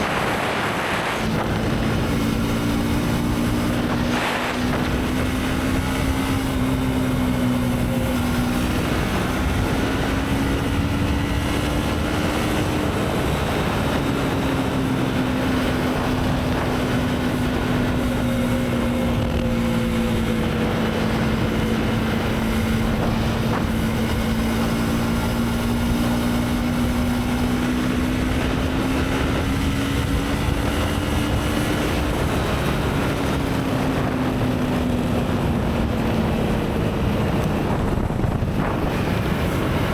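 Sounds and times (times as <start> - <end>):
motorcycle engine cruising: 0.0 - 39.9
rushing wind and road noise: 0.0 - 39.9.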